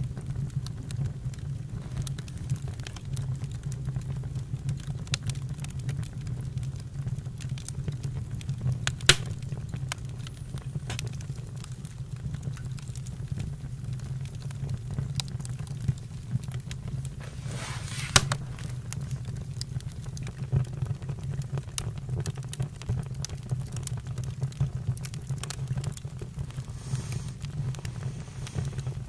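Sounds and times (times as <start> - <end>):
campfire crackling and popping: 0.0 - 29.0
campfire low rumble: 0.0 - 29.0
fire hissing: 8.9 - 20.0, 25.4 - 29.0.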